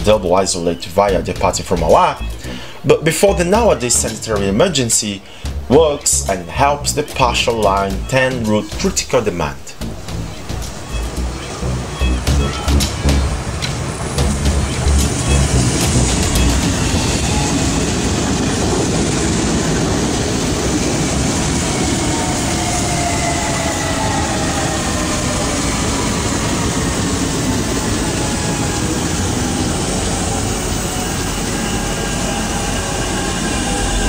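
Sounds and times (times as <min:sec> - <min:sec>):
train wheels rumbling on rails: 0:09.7 - 0:34.0.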